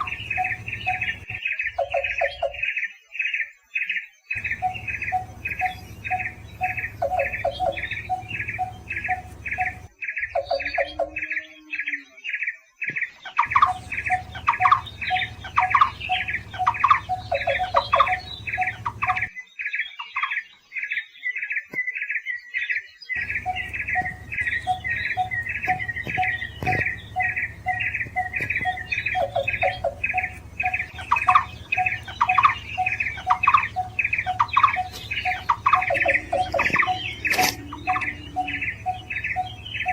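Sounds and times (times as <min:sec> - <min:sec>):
second bird lower repeated notes: 0:00.0 - 0:02.2, 0:04.4 - 0:11.0, 0:13.4 - 0:19.3, 0:23.2 - 0:39.9
bird calling short repeated notes: 0:23.2 - 0:39.9.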